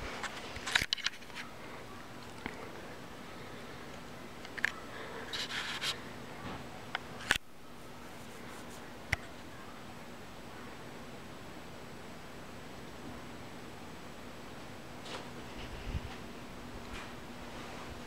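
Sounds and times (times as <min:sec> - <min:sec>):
ceiling fan humming: 0:00.0 - 0:18.0
sharp clicks and rustles: 0:00.2 - 0:01.5.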